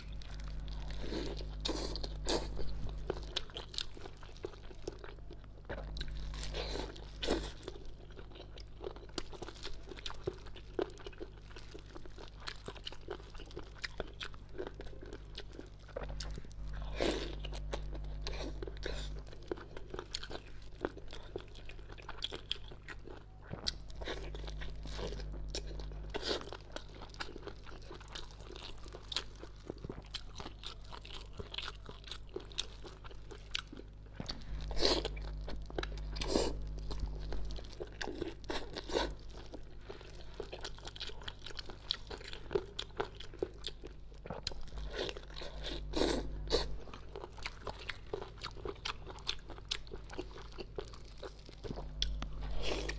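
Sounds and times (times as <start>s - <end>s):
low hum: 0.0s - 7.9s, 33.8s - 40.4s, 50.0s - 52.9s
chewing: 0.0s - 52.9s.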